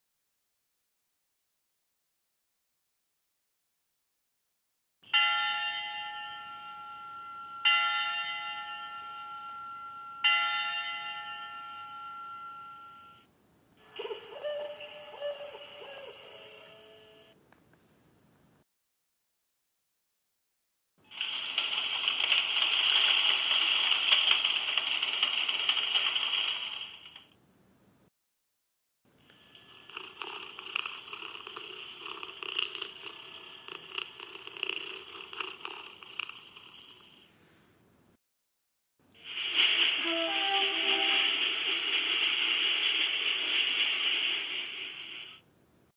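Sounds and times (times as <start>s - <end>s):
recorded bell striking: 5.1s - 13.3s
speaker hiss with crackling: 21.1s - 27.4s, 39.1s - 45.5s.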